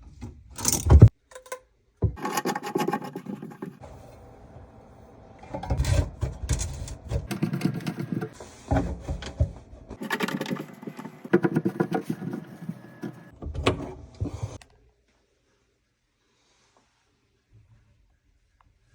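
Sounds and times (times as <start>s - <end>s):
hands rattling plumbing parts: 0.0s - 3.8s, 5.6s - 13.3s.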